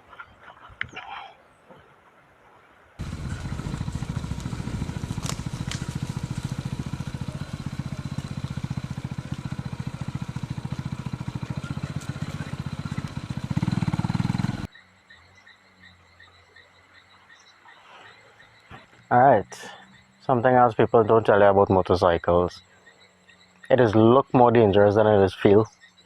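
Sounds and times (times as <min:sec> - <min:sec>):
motorcycle engine running: 0:03.0 - 0:14.7.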